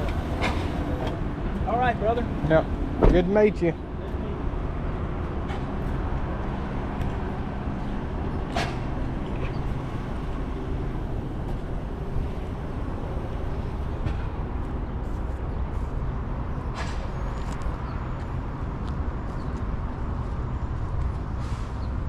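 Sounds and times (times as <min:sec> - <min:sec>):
engine idling: 0:00.0 - 0:01.3.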